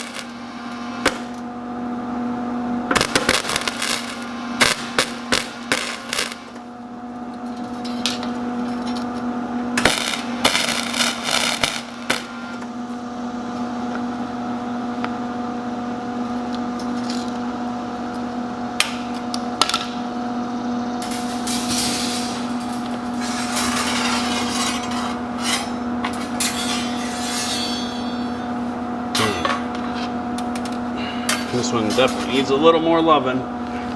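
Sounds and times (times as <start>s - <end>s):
steady electrical hum: 0.0s - 33.9s
metal clanks and strikes on wire: 21.0s - 32.5s.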